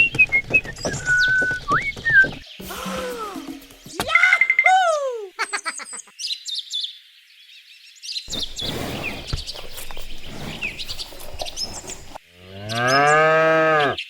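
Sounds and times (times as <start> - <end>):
small birds chirping: 0.0 - 2.8, 5.4 - 13.2
cow mooing: 12.4 - 14.0.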